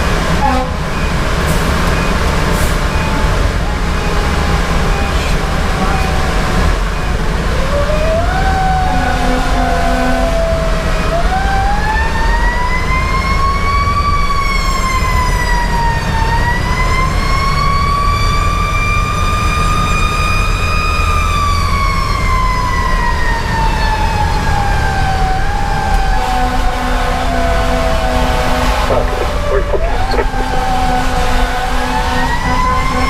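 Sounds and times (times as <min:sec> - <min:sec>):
diesel engine rumble: 0:00.0 - 0:33.0
mechanical siren wailing: 0:07.0 - 0:33.0.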